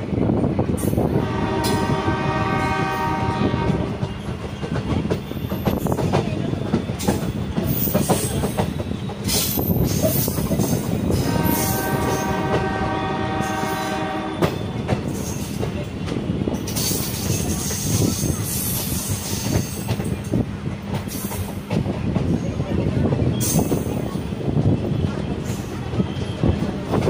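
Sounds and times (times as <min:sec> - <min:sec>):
locomotive multi-tone horn: 0:01.1 - 0:04.1, 0:11.2 - 0:14.8
train wheels clattering over rail joints: 0:02.8 - 0:27.0.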